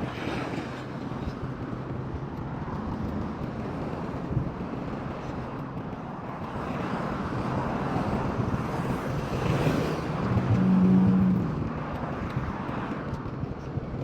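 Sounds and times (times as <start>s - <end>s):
vehicle driving past: 9.8s - 11.7s.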